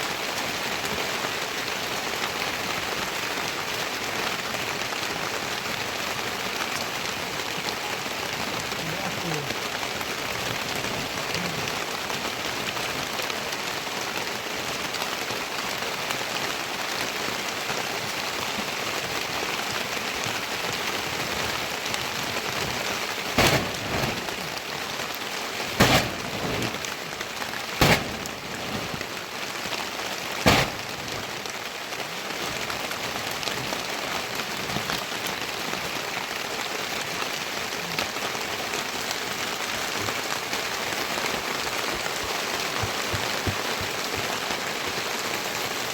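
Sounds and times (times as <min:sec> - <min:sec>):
heavy rain falling: 0:00.0 - 0:45.9
sharp loud knocks: 0:23.4 - 0:24.5, 0:25.8 - 0:26.8, 0:27.8 - 0:29.0, 0:30.4 - 0:31.2.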